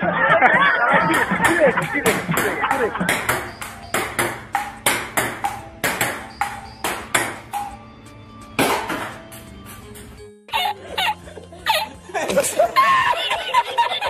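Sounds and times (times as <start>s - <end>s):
table tennis ball pinging: 1.0s - 7.8s, 8.6s - 10.2s.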